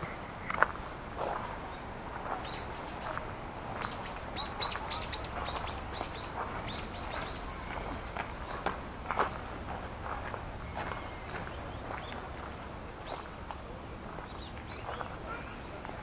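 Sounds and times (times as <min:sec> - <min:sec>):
footsteps on gravel: 0:00.5 - 0:15.2
bird chirping: 0:01.7 - 0:08.7, 0:10.1 - 0:12.2, 0:14.2 - 0:15.2.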